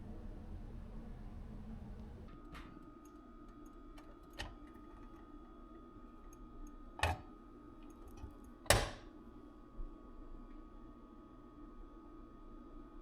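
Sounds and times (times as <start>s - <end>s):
low steady hum: 0.0s - 2.4s.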